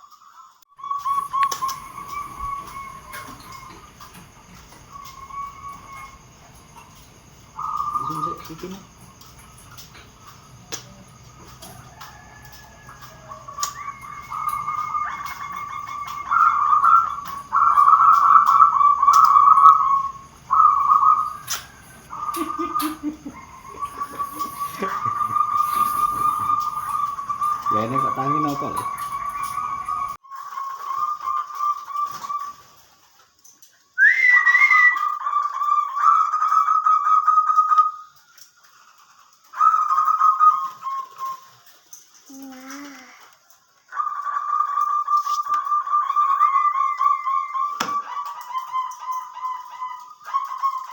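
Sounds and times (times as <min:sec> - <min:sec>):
dove cooing: 0:01.1 - 0:30.2.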